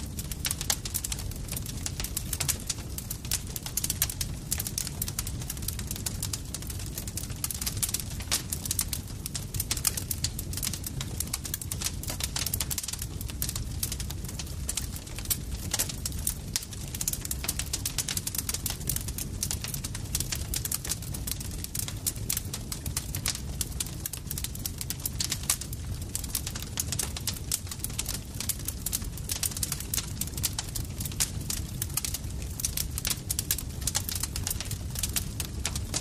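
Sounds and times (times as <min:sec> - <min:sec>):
campfire crackling: 0:00.0 - 0:36.0.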